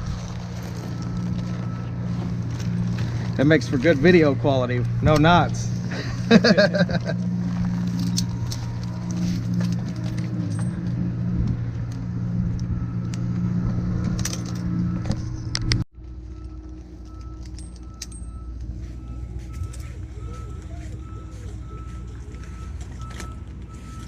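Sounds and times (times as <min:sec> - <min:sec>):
engine idling: 0:00.0 - 0:24.0
low hum: 0:00.0 - 0:24.0
metallic jingling and clinks: 0:17.0 - 0:20.6.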